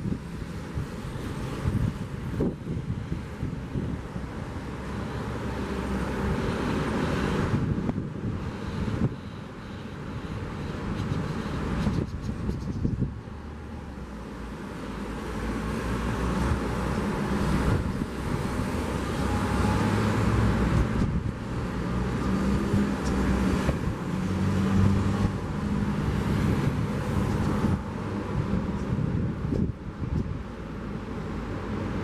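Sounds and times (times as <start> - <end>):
wind buffeting microphone: 0.0 - 32.0
car passing: 13.2 - 29.6.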